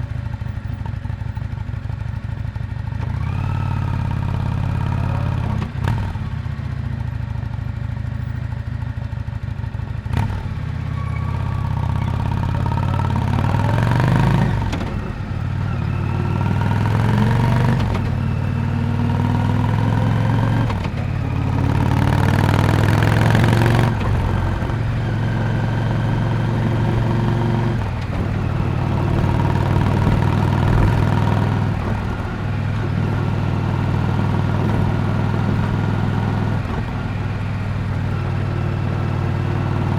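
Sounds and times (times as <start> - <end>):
motorcycle exhaust revving: 10.0 - 39.9.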